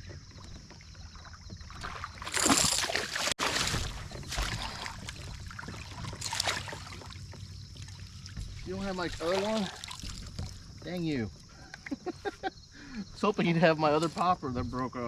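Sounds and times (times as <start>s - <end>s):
water splashing around kayak: 0.0s - 12.1s.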